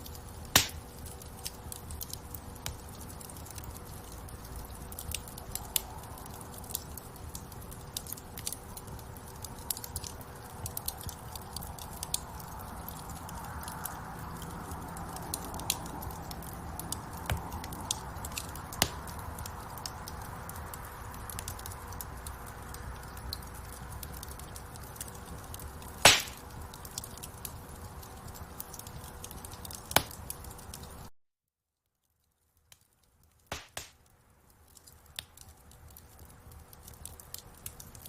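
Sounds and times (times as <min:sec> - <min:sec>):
wood fire crackling: 0:00.0 - 0:31.1, 0:32.0 - 0:38.0
loud fire pop: 0:00.6 - 0:00.8, 0:26.1 - 0:26.4, 0:33.5 - 0:34.0.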